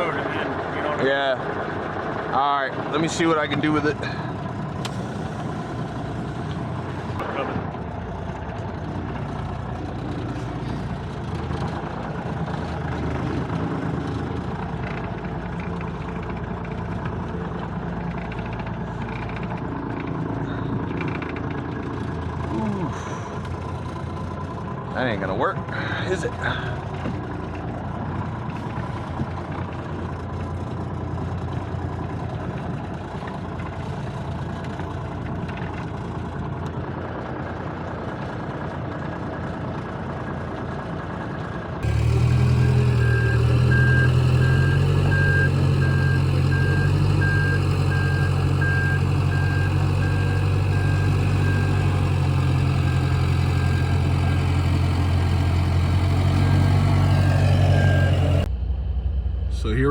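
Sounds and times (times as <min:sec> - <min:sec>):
diesel engine running: 0:00.0 - 0:59.9
reversing alarm beeping: 0:41.8 - 0:54.7, 0:56.4 - 0:59.9.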